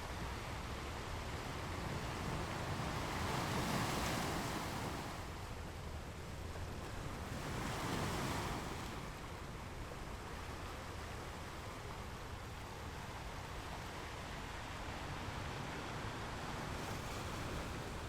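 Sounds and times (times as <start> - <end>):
waves washing in: 0.6 - 5.4.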